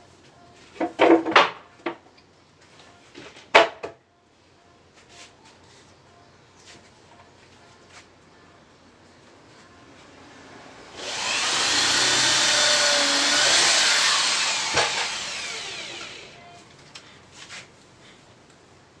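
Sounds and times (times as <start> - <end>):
electric power tool whining: 10.9 - 16.4.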